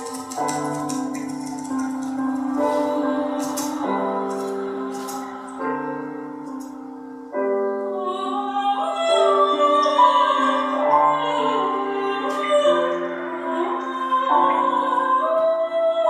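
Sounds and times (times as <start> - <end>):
soprano singing operatically: 2.0 - 6.4, 7.7 - 16.0.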